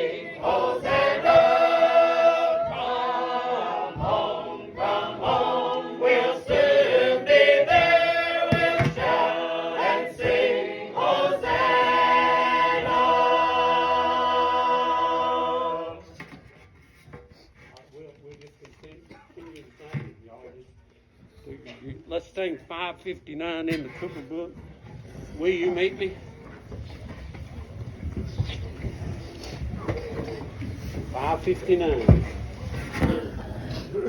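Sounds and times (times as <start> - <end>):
choir singing a hymn: 0.0 - 16.2.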